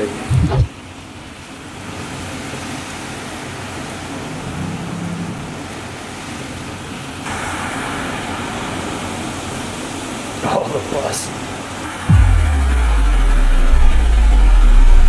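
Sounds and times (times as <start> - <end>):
traffic hiss on wet streets: 1.0 - 12.1
heavy rain pouring: 7.3 - 15.0.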